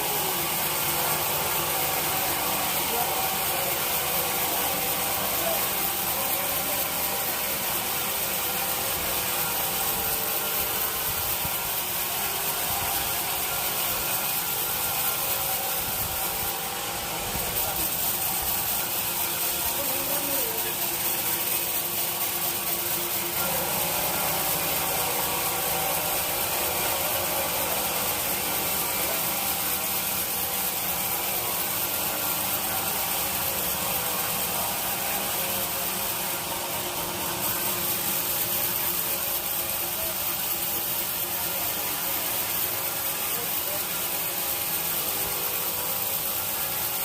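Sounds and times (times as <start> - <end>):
faint mechanical hum: 0.0 - 47.0
sawmill saw hissing: 0.0 - 47.0.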